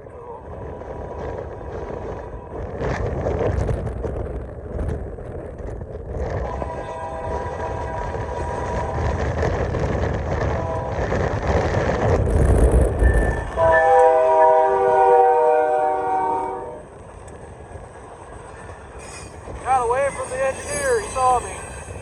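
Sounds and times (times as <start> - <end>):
low locomotive rumble: 0.0 - 22.0
locomotive air horn: 6.4 - 9.2, 10.4 - 11.1, 13.5 - 16.9.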